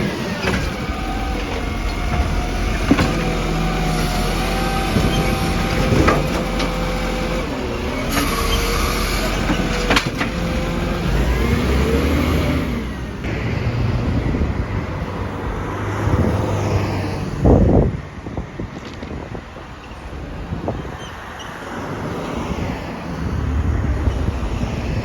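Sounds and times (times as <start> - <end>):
garbage truck engine running: 0.0 - 15.7.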